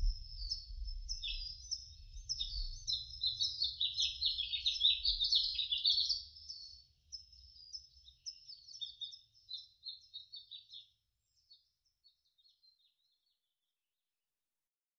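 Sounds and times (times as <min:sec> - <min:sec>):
faint low rumble: 0:00.0 - 0:03.1
birds chirping: 0:00.0 - 0:13.2.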